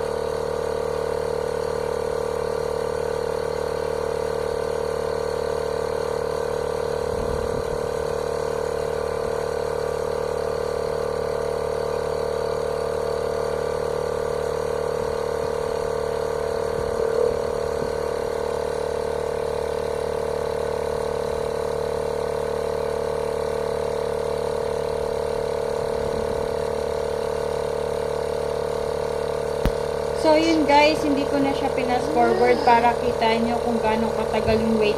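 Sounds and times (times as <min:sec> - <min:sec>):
portable air compressor running: 0:00.0 - 0:34.9.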